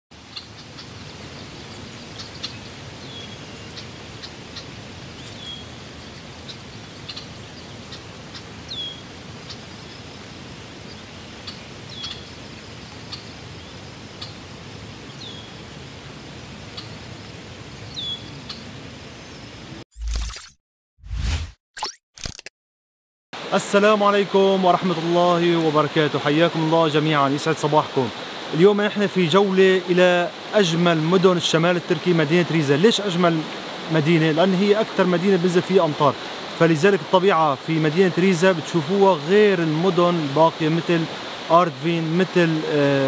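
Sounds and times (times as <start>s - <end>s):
faint bird chirps: 0.3s - 10.1s, 10.9s - 12.4s, 17.8s - 18.6s.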